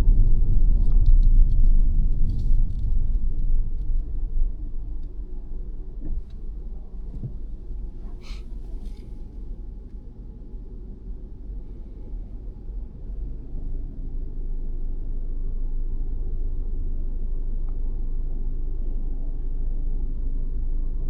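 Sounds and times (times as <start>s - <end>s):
road and engine rumble in car: 0.0s - 19.3s.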